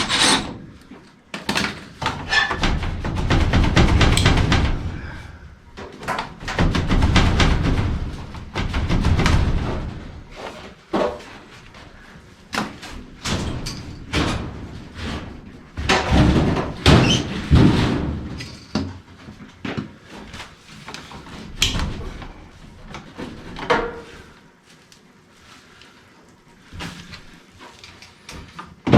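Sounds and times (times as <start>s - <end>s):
knocks and bangs on sheet metal: 2.0s - 10.4s, 13.2s - 18.4s.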